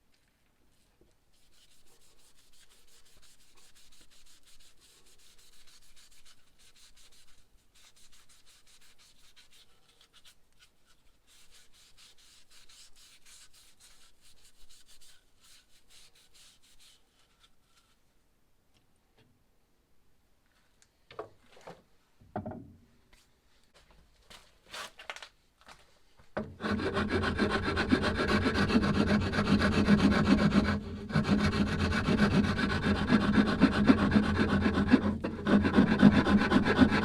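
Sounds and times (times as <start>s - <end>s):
hand-sanding strokes: 1.3s - 17.9s, 26.5s - 37.0s.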